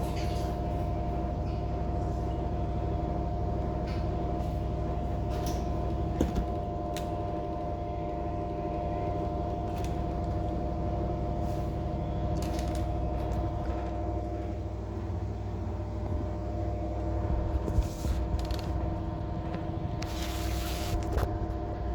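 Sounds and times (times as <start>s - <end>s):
machine drone with whining tones: 0.0s - 21.9s.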